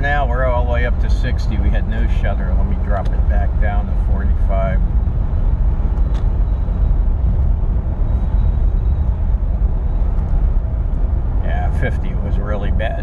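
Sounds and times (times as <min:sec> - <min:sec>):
car cabin road and engine noise: 0:00.0 - 0:13.0.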